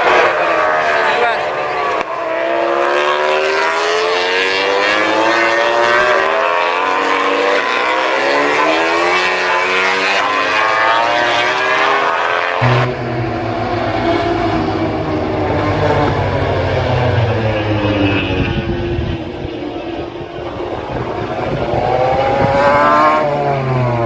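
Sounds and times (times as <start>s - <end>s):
racing motorcycle engines revving: 0.0s - 24.0s.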